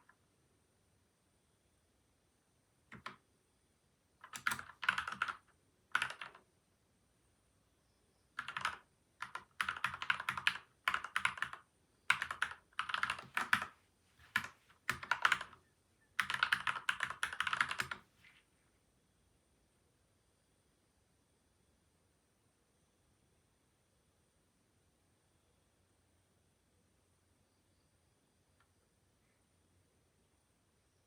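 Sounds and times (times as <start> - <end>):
mechanical keyboard typing: 2.9 - 3.2, 4.2 - 6.4, 8.4 - 15.6, 16.2 - 18.0.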